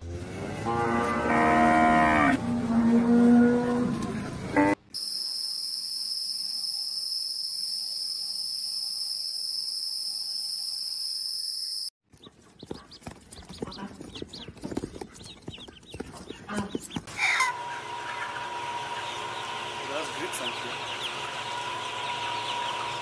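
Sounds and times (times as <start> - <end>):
chickens scratching and pecking: 12.1 - 22.2
chickens clucking: 12.1 - 23.0.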